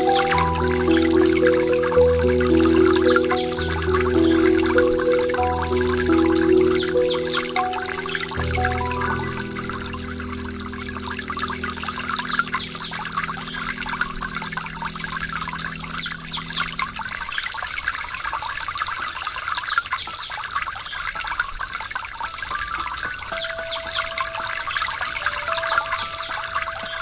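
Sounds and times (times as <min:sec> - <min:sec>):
low music chord: 0:00.0 - 0:17.3.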